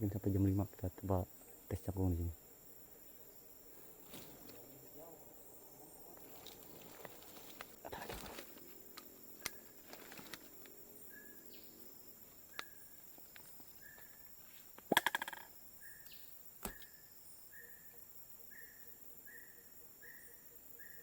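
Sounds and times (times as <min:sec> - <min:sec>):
rattle of clicks: 0:14.8 - 0:15.5.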